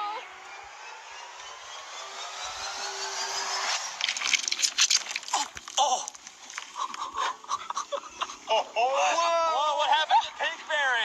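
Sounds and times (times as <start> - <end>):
car tyres rolling: 0.0 - 9.8
foam toys crackling and popping: 4.0 - 7.1.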